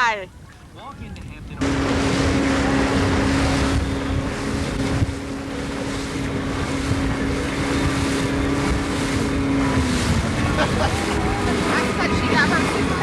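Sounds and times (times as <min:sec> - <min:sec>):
motorboat engine droning: 0:00.0 - 0:13.0
water noise: 0:00.0 - 0:13.0
wind buffeting microphone: 0:00.0 - 0:13.0.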